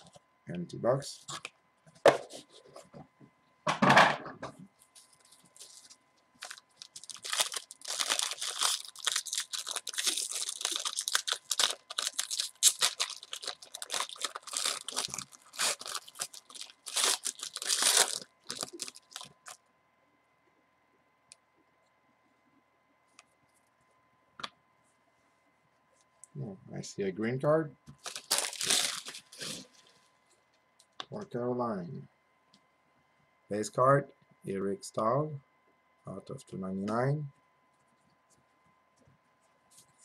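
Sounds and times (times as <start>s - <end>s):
wrapping tearing and crumpling: 5.0s - 19.6s, 28.0s - 30.0s.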